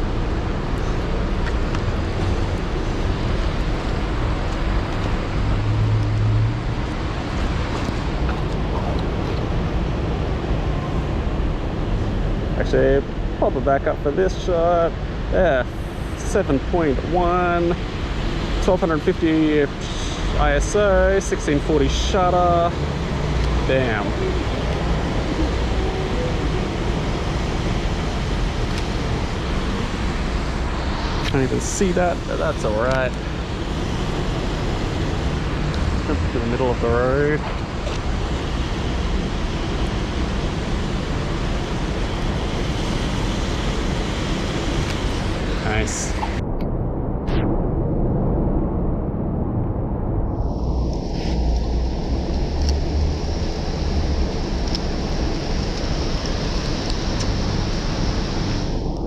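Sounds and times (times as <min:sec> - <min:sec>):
city street traffic: 0:00.0 - 0:59.0
heavy rain pouring: 0:15.2 - 0:46.4, 0:50.6 - 0:59.0
low hum: 0:19.6 - 0:59.0
low rumble: 0:19.7 - 0:59.0.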